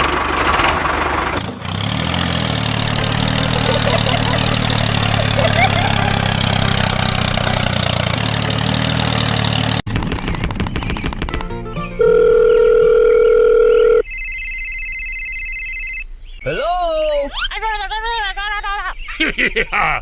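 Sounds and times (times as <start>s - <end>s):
high pulsing phone ring: 12.0s - 16.1s
loud steady telephone tone: 12.0s - 16.1s.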